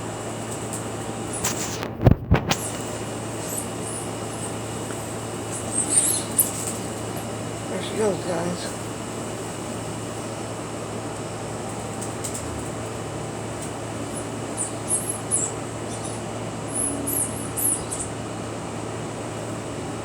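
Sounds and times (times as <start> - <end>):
background hum and hiss: 0.0 - 20.0
high squeaky chirps: 3.4 - 7.4, 14.0 - 18.2.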